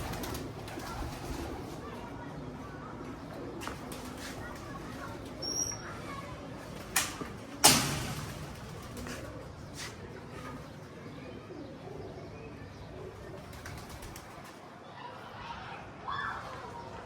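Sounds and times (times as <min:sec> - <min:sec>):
pigeons cooing: 0:00.0 - 0:02.2.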